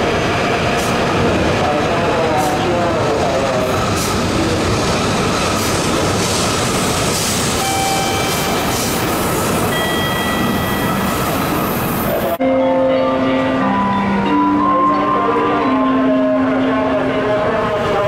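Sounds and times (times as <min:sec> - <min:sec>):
train rushing past: 0:00.0 - 0:12.4.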